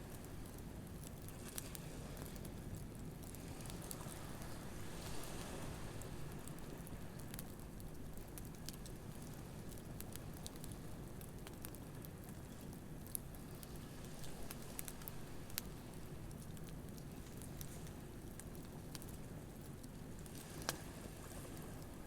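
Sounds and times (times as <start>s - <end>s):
campfire crackling and popping: 6.0s - 22.0s.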